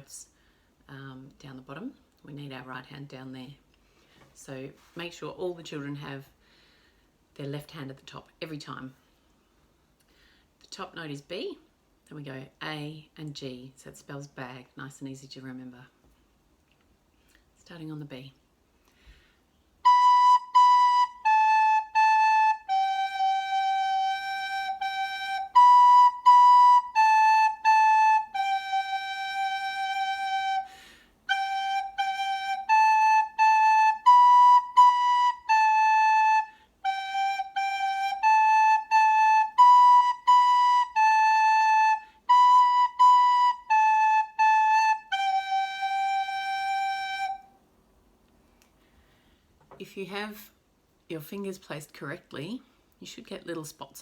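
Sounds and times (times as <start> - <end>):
recorder playing simple tune: 19.8 - 47.5.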